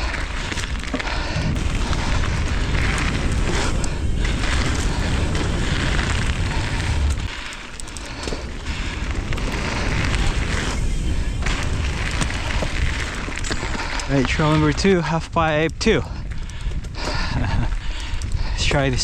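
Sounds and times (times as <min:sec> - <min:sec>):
tyre rumble: 0:00.0 - 0:14.6
bike clattering over bumps: 0:00.0 - 0:17.9
wind buffeting microphone: 0:00.0 - 0:19.0.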